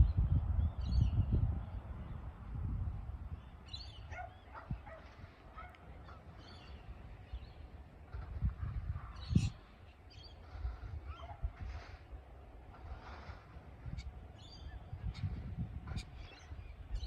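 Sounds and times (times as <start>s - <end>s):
birds calling and chirping: 3.3s - 17.0s.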